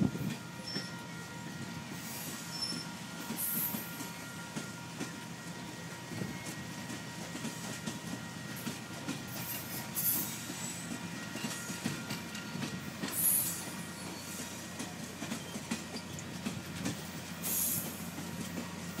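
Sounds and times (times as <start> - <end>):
train rumbling past: 0.0 - 19.0
high-pitched wheel squeals: 2.4 - 4.0.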